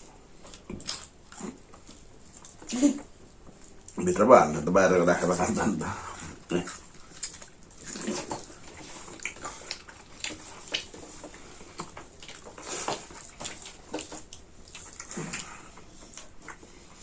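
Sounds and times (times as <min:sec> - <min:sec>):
people chewing and lip-smacking: 0:00.0 - 0:04.1, 0:05.2 - 0:17.0.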